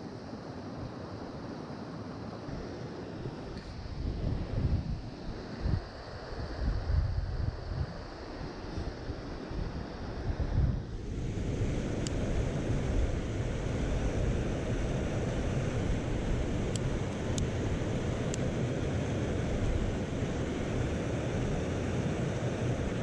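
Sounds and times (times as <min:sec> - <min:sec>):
mountain stream rushing: 0:00.0 - 0:23.0
faint high ticks: 0:12.0 - 0:12.2, 0:16.7 - 0:17.5.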